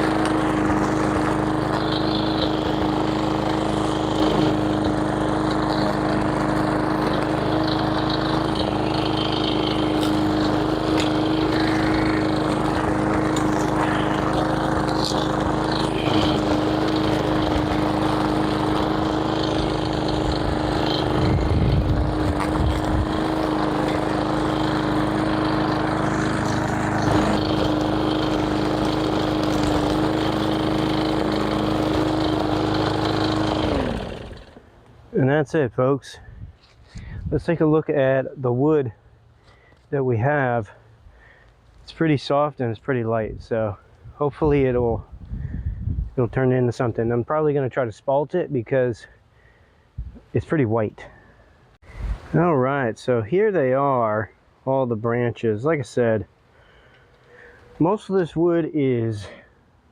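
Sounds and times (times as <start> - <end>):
small gasoline engine running: 0.0 - 35.1, 56.6 - 58.4.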